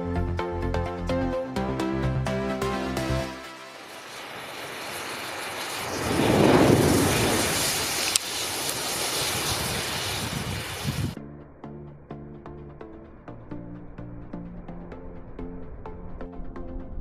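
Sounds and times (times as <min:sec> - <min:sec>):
matches flaring with rushing hiss: 0:03.3 - 0:11.2
sharp crack: 0:03.8 - 0:11.0.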